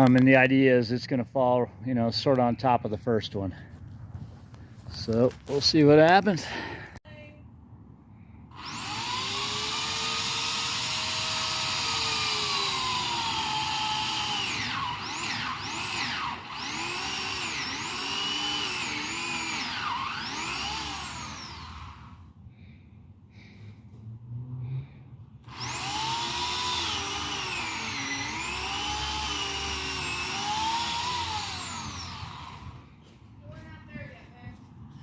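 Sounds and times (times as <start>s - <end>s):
chainsaw cutting tree trunk: 8.6s - 22.2s, 25.4s - 32.8s.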